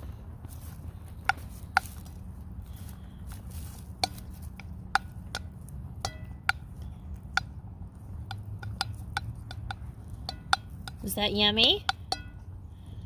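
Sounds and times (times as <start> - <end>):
beaks tapping on a plate: 3.9 - 12.5.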